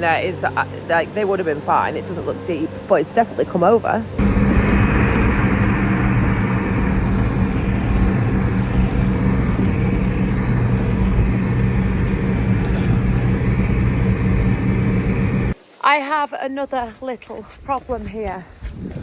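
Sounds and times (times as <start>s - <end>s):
constant low hum: 0.0s - 15.6s
vehicle engine running: 0.0s - 15.6s
loud rushing noise: 4.2s - 15.6s.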